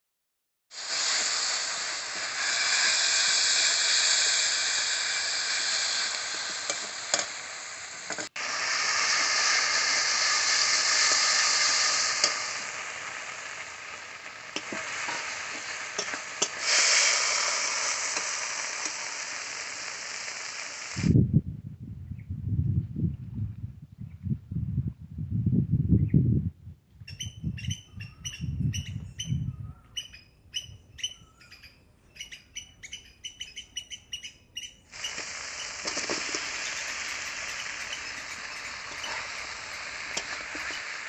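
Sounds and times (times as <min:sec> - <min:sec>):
food sizzling in oil: 0:00.8 - 0:21.1, 0:35.0 - 0:41.0.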